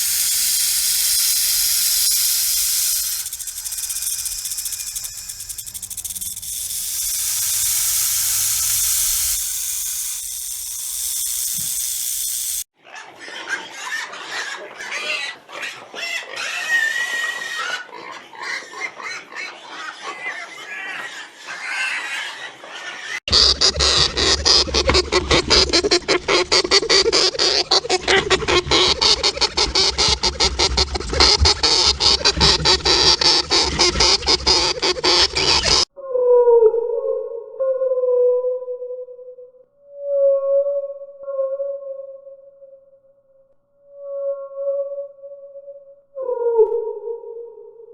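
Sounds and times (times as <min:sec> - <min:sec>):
pigs grunting and squealing: 0:12.9 - 0:35.9.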